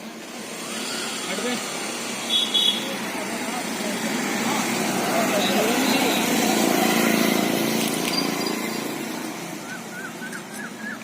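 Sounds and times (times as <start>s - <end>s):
road vehicle passing: 0.0s - 11.0s.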